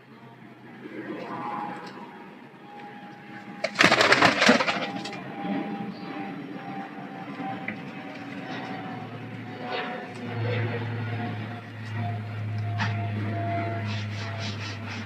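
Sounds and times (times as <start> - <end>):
pigeon wingbeats: 3.6 - 5.2.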